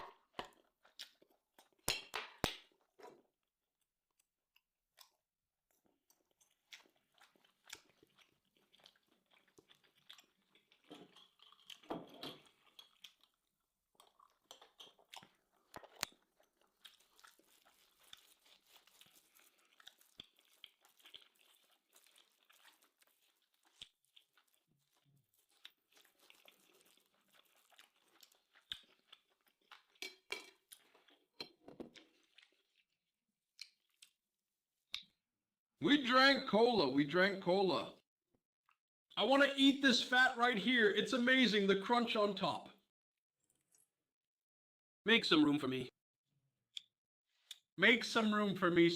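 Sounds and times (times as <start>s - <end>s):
person chewing and crunching food: 0.0s - 35.2s, 43.4s - 44.0s, 46.8s - 47.7s.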